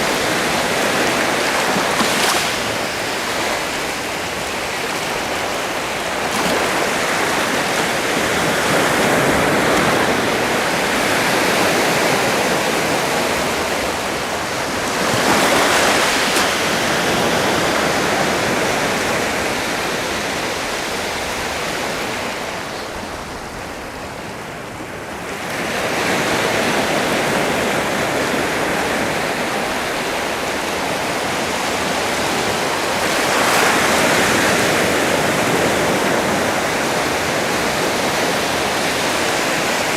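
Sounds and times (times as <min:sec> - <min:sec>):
sea waves washing onto shore: 0:00.0 - 0:39.9.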